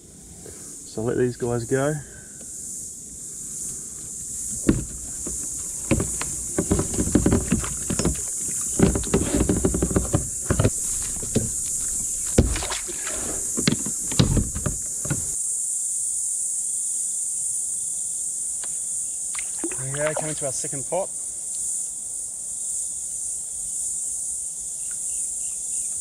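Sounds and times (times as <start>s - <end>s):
insects chirring: 0.0s - 26.0s
splashing in shallow water: 4.4s - 15.4s, 19.4s - 20.7s.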